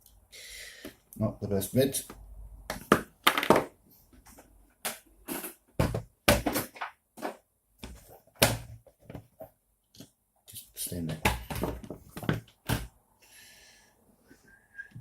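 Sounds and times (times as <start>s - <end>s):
plastic parts knocking and clicking: 2.7s - 3.7s, 11.1s - 12.9s.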